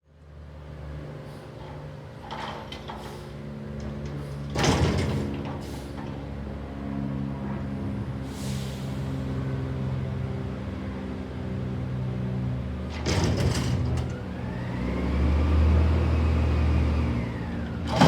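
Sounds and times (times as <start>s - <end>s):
garbage truck engine running: 12.9s - 18.0s.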